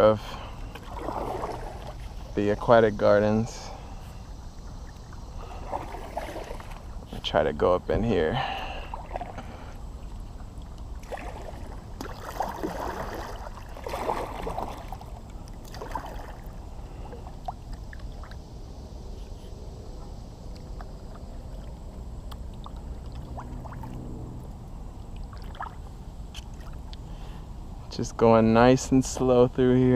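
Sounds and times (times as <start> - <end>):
faint low hum: 0.0 - 29.9
paddle strokes splashing water: 0.4 - 2.7, 3.6 - 7.2, 8.6 - 18.5, 19.1 - 24.1, 25.2 - 26.9
water ticks and drips: 9.1 - 12.8, 19.9 - 24.0.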